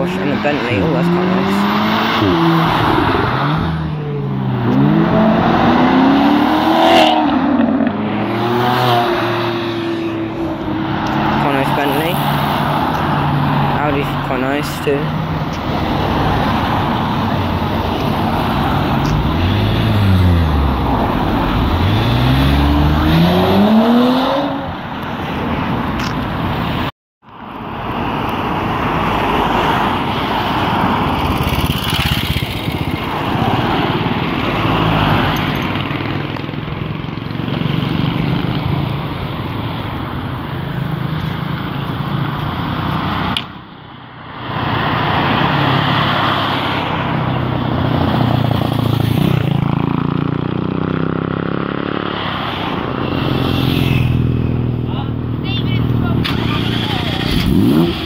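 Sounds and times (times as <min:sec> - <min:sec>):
passing cars road noise: 0:00.0 - 0:58.0
sports car engine revving: 0:00.1 - 0:12.4, 0:18.8 - 0:24.7, 0:56.2 - 0:58.0.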